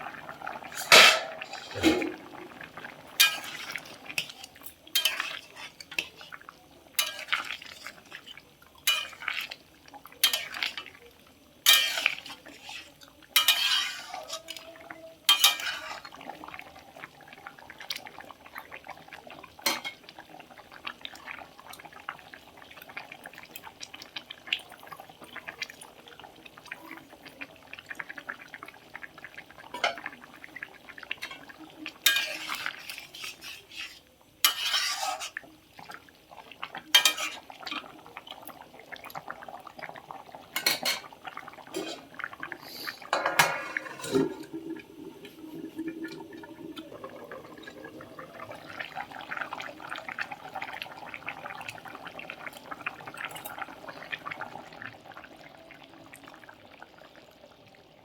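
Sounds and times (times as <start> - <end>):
metal utensil scraping a pot: 0.6 - 2.2, 3.2 - 6.3, 7.0 - 8.1, 8.8 - 9.3, 11.6 - 14.6, 15.3 - 16.2, 32.0 - 35.4, 36.9 - 37.4, 41.7 - 44.5.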